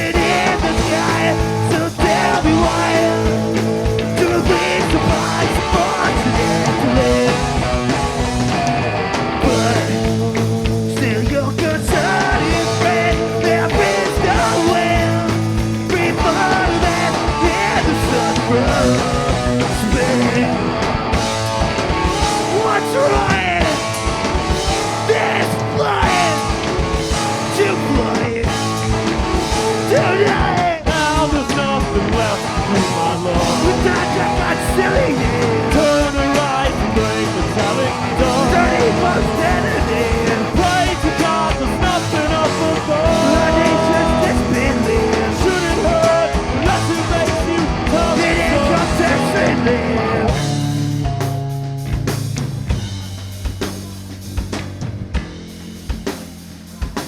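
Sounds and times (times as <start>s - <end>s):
person singing: 0.0s - 8.7s, 9.4s - 20.9s, 22.2s - 24.0s, 24.6s - 50.7s
bass guitar: 0.0s - 57.0s
distorted electric guitars: 0.0s - 57.0s
drums: 0.0s - 57.0s.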